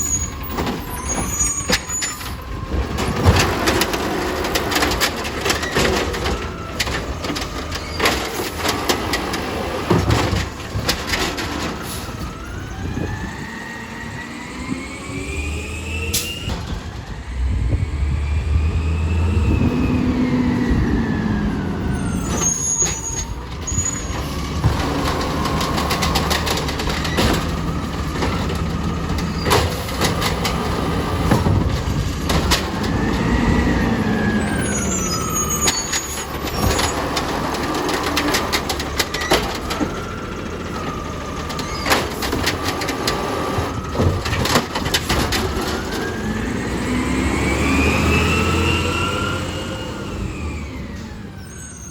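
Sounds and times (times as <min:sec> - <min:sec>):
garbage truck engine revving: 0:00.0 - 0:51.9
clattering knocks and bangs: 0:00.3 - 0:12.0, 0:22.3 - 0:33.5, 0:35.6 - 0:46.1.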